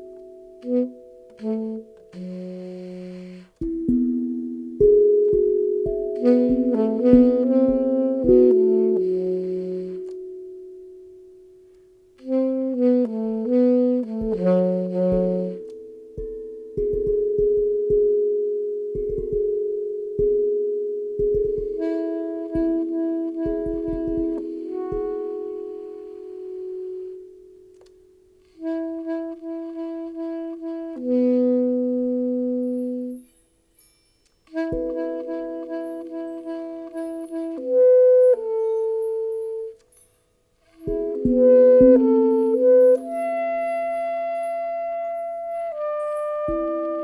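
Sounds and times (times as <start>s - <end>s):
saxophone playing slow phrase: 0.6s - 3.7s, 6.1s - 10.8s, 12.2s - 16.0s, 21.6s - 27.5s, 28.4s - 33.2s, 34.5s - 39.8s, 40.6s - 47.0s
steel tongue drum ringing: 38.2s - 47.0s.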